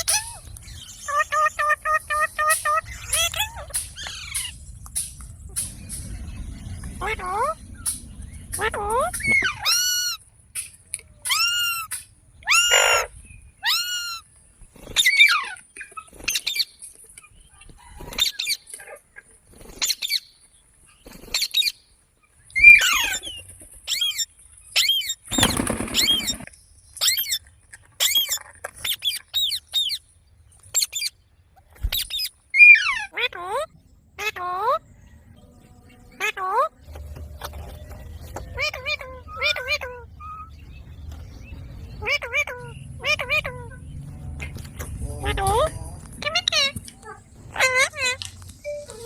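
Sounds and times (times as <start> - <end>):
parrot calling: 0.0 - 4.6, 11.3 - 14.2, 32.0 - 34.8, 38.6 - 40.6, 42.0 - 43.8, 45.3 - 48.3.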